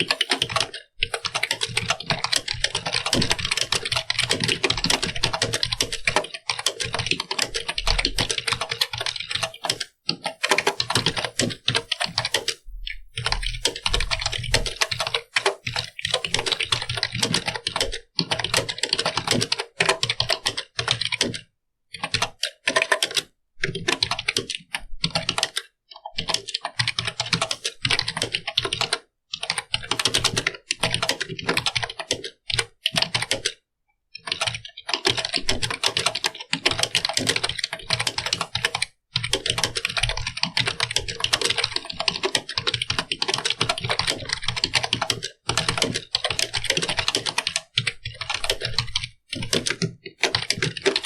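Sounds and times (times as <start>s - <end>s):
keyboard typing clicks: 0.0s - 21.4s, 34.2s - 51.0s.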